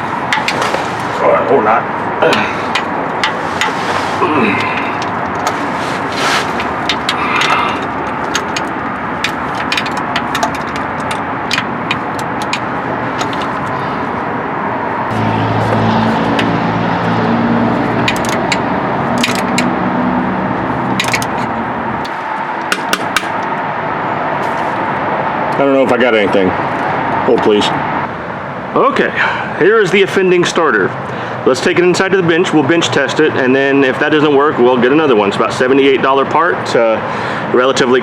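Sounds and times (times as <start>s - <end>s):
low engine hum: 0.0s - 25.7s
steady noisy background: 0.0s - 38.0s
metallic clicks of hand tools: 6.6s - 13.8s, 17.9s - 19.7s.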